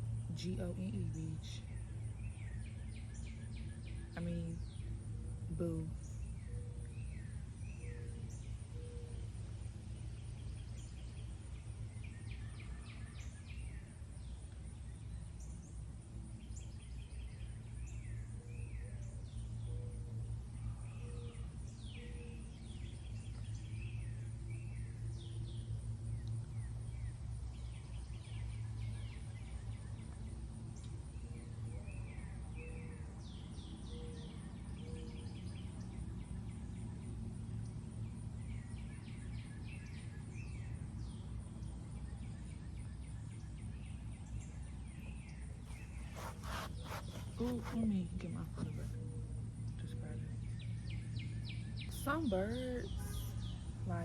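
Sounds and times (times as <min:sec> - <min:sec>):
low background hum: 0:00.0 - 0:54.0
birds chirping: 0:43.3 - 0:54.0.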